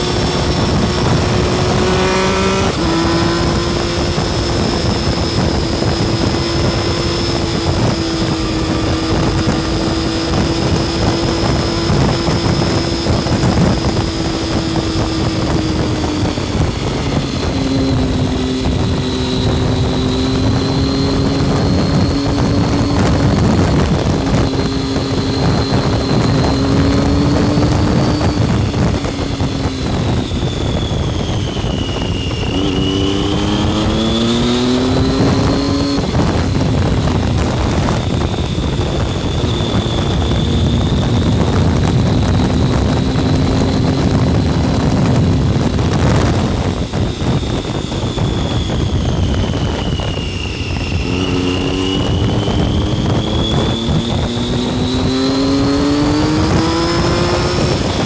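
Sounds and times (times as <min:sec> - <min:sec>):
motorcycle engine accelerating: 0:00.0 - 0:58.0
wind rush: 0:00.0 - 0:58.0.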